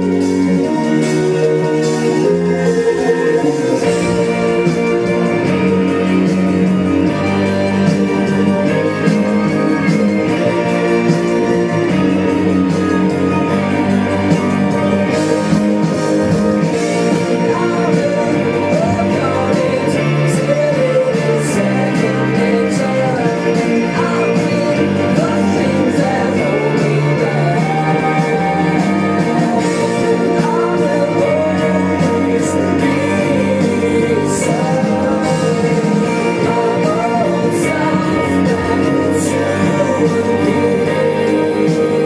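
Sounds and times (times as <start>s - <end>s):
guitar and band backing: 0.0s - 42.0s
pop-rock song: 0.0s - 42.0s
man singing: 1.8s - 6.1s, 16.7s - 42.0s.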